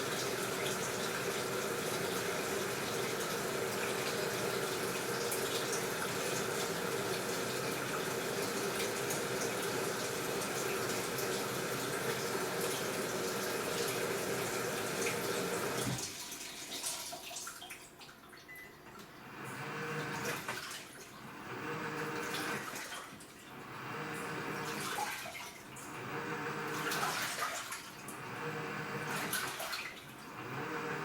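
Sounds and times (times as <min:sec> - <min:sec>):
washing machine filling with water: 0:00.0 - 0:31.0
water swishing in tub: 0:19.6 - 0:30.9.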